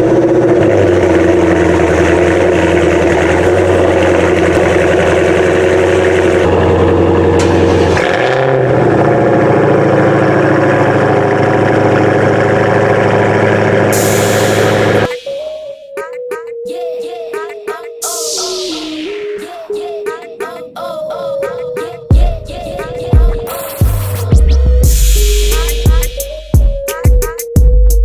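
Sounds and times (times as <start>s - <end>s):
supercharged car engine running: 0.0s - 15.2s, 22.1s - 26.7s.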